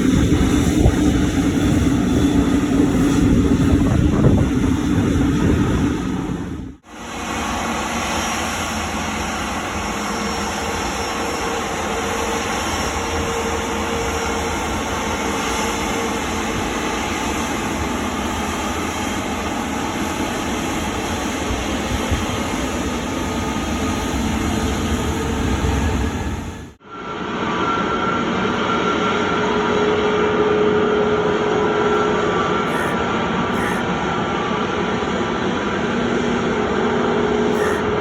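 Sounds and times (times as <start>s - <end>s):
jet engines rumbling with whine: 0.0s - 38.0s.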